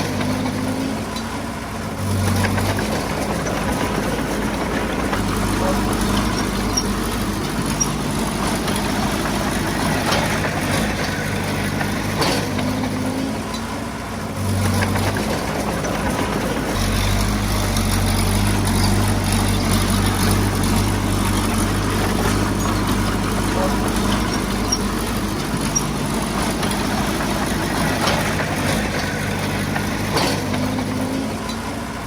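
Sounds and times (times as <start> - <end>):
engine knocks: 0.0 - 32.0
heavy diesel engine running: 0.0 - 32.0.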